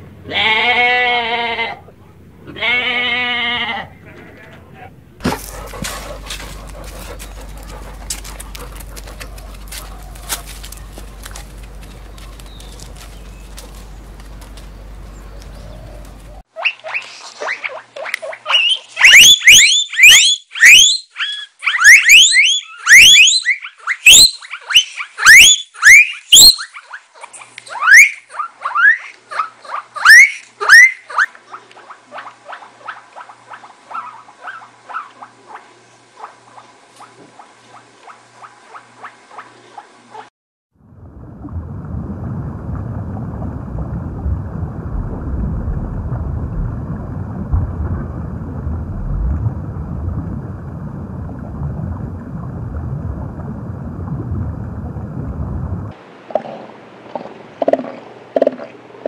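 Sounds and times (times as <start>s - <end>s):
guinea pigs squealing: 16.6s - 35.6s.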